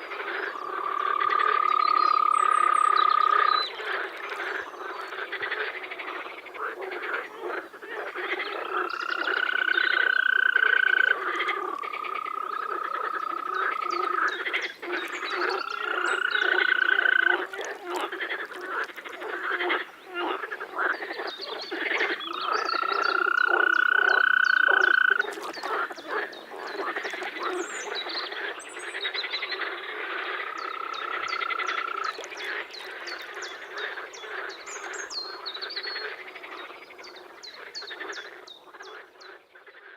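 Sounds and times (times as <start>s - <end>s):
frogs croaking: 0.0s - 39.9s
long trilling calls: 8.2s - 20.4s, 21.1s - 28.2s.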